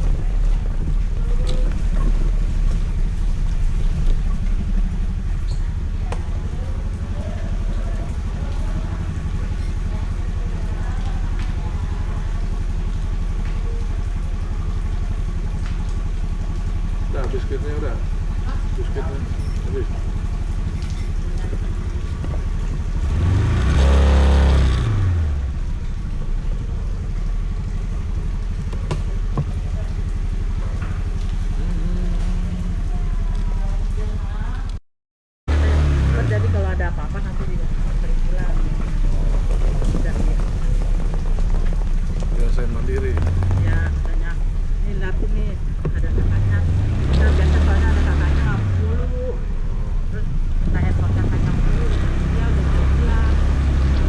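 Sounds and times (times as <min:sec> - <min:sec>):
scooter engine: 0:00.0 - 0:34.8, 0:35.5 - 0:54.0
vehicle passing by: 0:17.3 - 0:26.0, 0:46.0 - 0:54.0.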